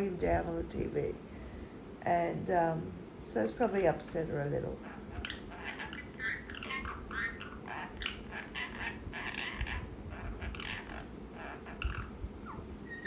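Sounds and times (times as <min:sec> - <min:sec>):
parrot chirping and squawking: 0:04.8 - 0:13.0.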